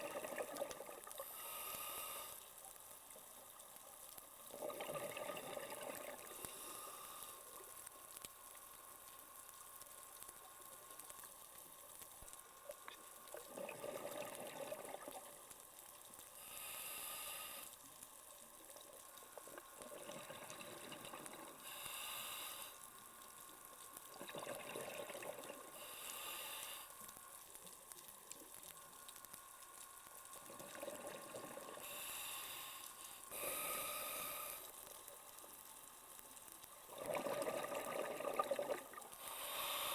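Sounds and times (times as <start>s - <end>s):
bubbling exhale underwater: 0.0s - 1.2s, 4.5s - 6.4s, 13.4s - 15.3s, 19.5s - 21.6s, 24.2s - 25.8s, 30.5s - 32.0s, 36.9s - 39.7s
hissing regulator inhale: 1.2s - 2.6s, 6.1s - 7.6s, 16.3s - 17.8s, 21.5s - 23.0s, 25.7s - 27.2s, 31.7s - 34.9s, 39.1s - 39.9s.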